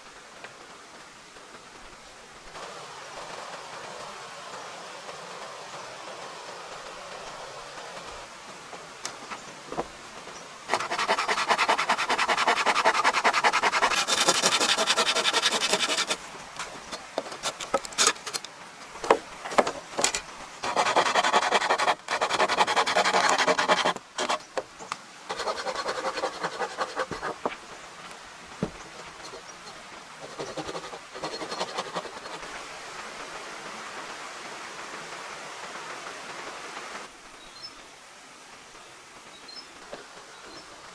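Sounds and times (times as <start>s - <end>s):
tool grating wood: 10.7s - 18.4s, 19.5s - 24.5s, 25.3s - 27.6s, 28.6s - 32.5s
sharp clicks and knocks: 13.8s - 27.6s.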